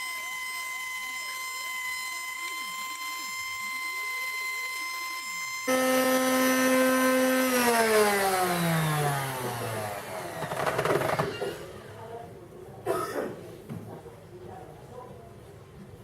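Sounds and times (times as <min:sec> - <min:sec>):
power tool motor whining: 0:00.0 - 0:12.1.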